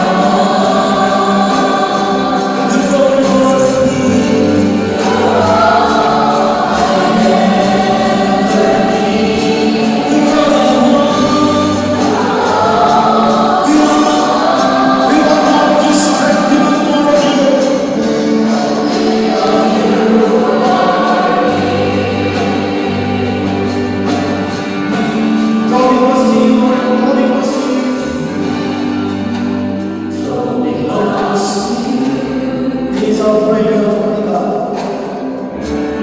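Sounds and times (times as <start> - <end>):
choir singing gospel: 0.0 - 36.0
low bass notes: 2.0 - 20.4.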